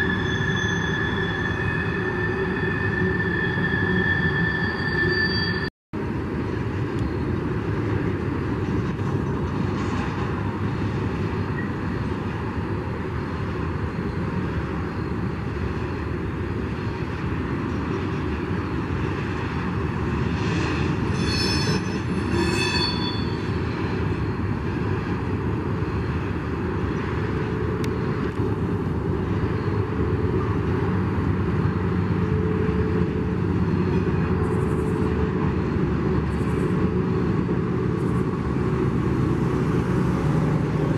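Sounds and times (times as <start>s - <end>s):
high wheel squeals: 0.0s - 5.7s, 20.5s - 24.5s
train wheels rumbling on rail: 0.0s - 40.9s.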